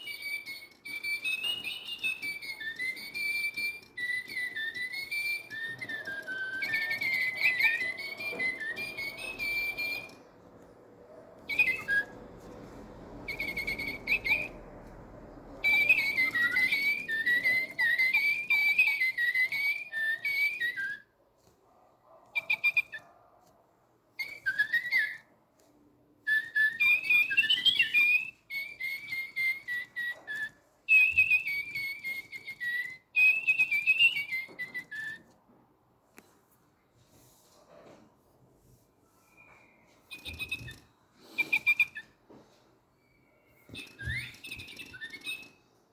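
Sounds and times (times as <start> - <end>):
toy birds chirping: 0.0 - 10.8, 11.4 - 21.1, 22.4 - 23.1, 24.2 - 25.3, 26.3 - 35.4, 39.4 - 42.2, 43.0 - 45.9.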